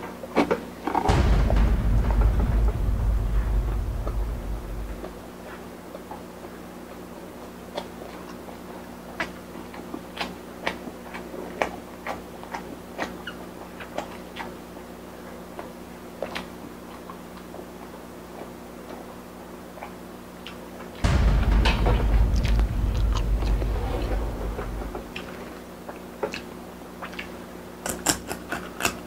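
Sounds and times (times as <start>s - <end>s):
steady low hum: 1.1s - 6.1s, 20.9s - 26.0s.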